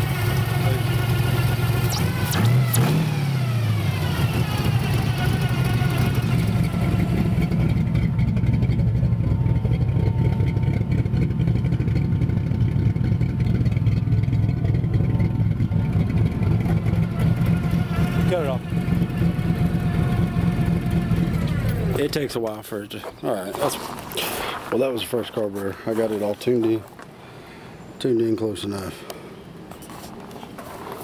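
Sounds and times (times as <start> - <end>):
car engine revving and idling: 0.0 - 22.3.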